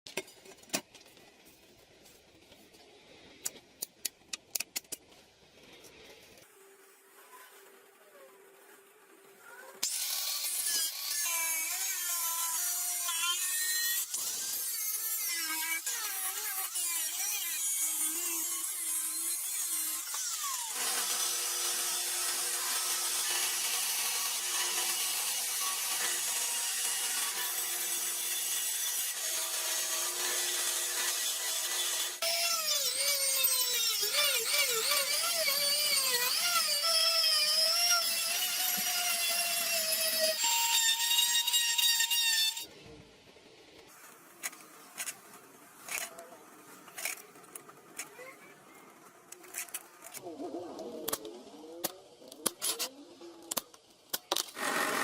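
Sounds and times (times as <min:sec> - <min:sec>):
electric grinder grinding steel: 0:09.8 - 0:42.7, 0:54.4 - 0:55.0.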